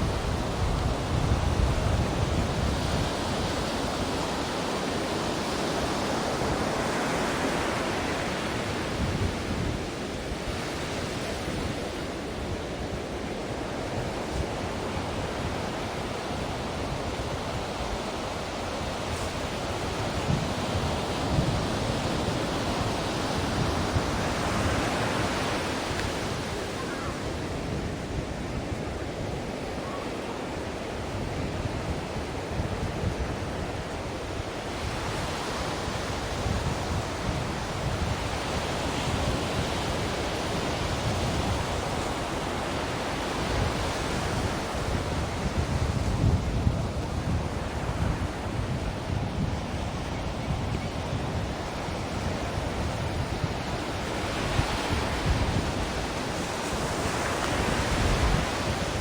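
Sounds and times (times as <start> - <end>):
ocean waves washing: 0.0 - 59.0.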